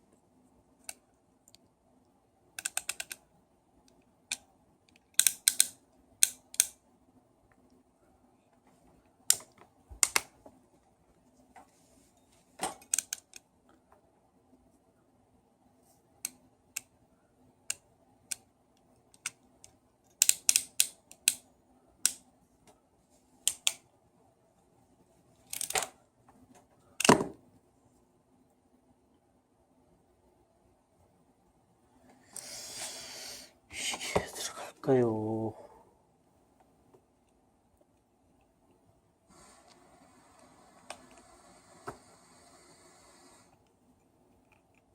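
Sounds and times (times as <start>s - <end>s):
small parts and tools clicking: 2.6s - 3.2s, 3.9s - 6.8s, 12.7s - 13.4s, 19.1s - 21.4s, 25.4s - 26.0s.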